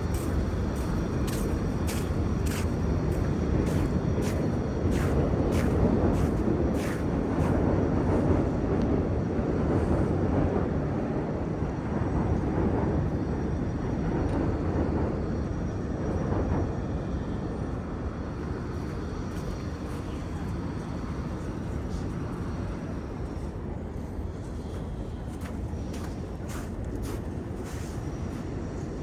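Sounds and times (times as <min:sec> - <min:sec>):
footsteps crunching in snow: 0:00.0 - 0:07.6, 0:24.4 - 0:28.5
low rumble of city noise: 0:00.0 - 0:29.0.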